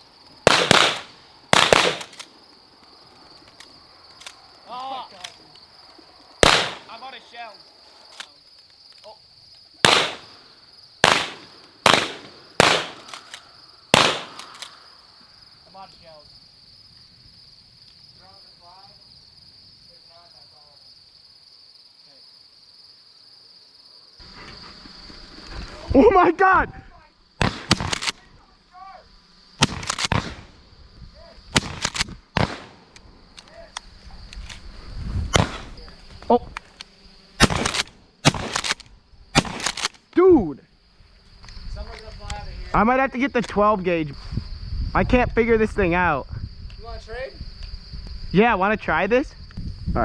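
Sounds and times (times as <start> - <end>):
crickets chirping: 0.0 - 50.0
high insect drone: 0.0 - 50.0
shotgun blasts: 0.4 - 2.3, 6.4 - 7.1, 9.8 - 14.8, 27.4 - 28.1, 29.6 - 30.5, 31.5 - 32.8, 35.3 - 35.8, 37.4 - 38.8, 39.4 - 39.9.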